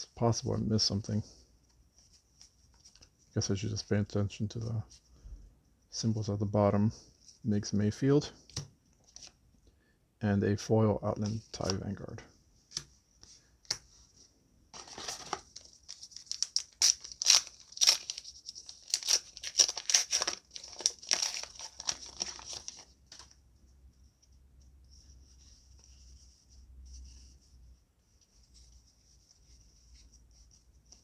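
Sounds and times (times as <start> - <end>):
wrapper crinkling and tearing: 14.8 - 22.9.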